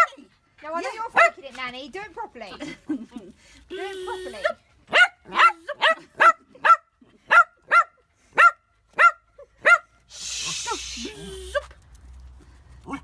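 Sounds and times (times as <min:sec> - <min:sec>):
small dog barking: 0:01.2 - 0:01.4, 0:04.1 - 0:09.9.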